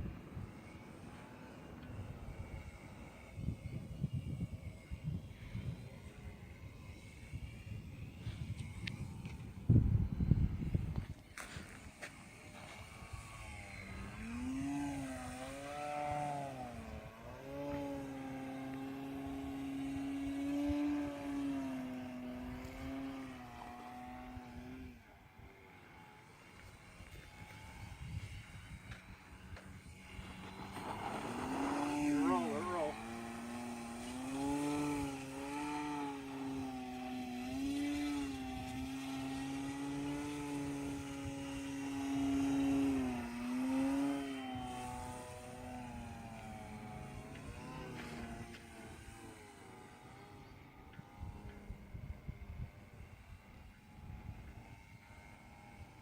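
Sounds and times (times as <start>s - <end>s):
model airplane motor whining: 0.0s - 56.0s
wind buffeting microphone: 1.9s - 11.9s, 26.8s - 35.3s.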